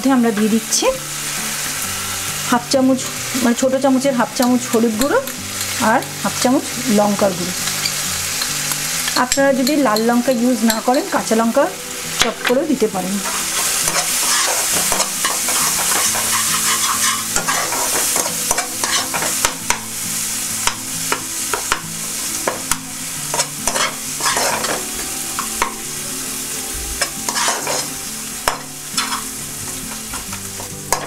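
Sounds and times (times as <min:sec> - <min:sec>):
masala sizzling in oil: 0:00.0 - 0:31.0
spatula scraping a pan: 0:13.2 - 0:19.8, 0:23.3 - 0:24.8, 0:27.0 - 0:29.3.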